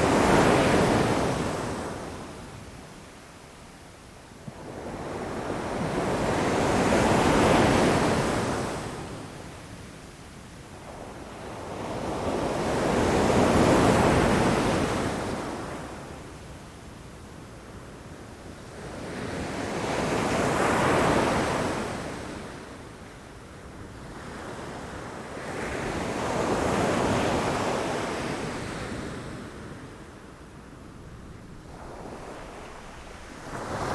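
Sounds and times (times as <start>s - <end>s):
ocean waves breaking against rocks: 31.0s - 33.9s.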